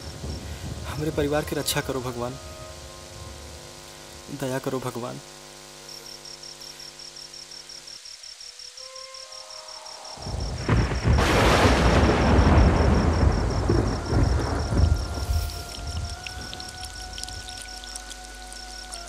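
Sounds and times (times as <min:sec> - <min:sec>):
thunder rumbling: 0:00.0 - 0:03.6, 0:10.2 - 0:17.6
downpour hissing: 0:00.0 - 0:05.3, 0:08.0 - 0:19.0
soft held music chord: 0:00.9 - 0:05.2, 0:13.7 - 0:19.0.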